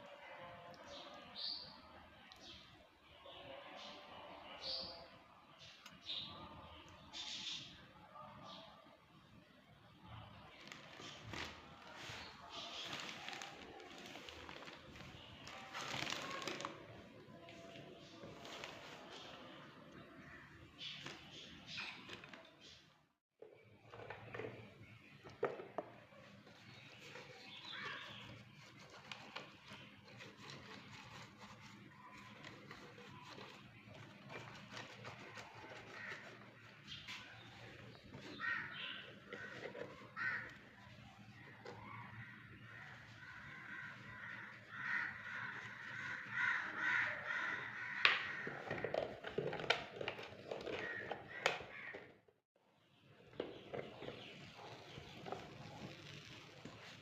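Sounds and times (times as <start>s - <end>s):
crows cawing: 36.0s - 36.4s, 38.3s - 40.6s, 42.2s - 48.9s, 50.8s - 52.0s.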